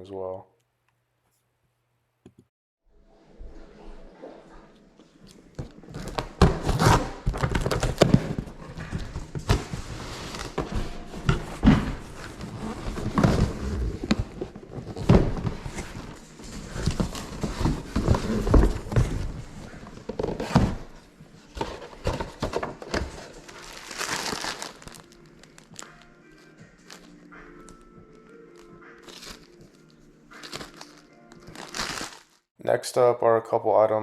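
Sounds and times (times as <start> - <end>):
packaging rustling: 5.6 - 28.0, 28.6 - 32.5.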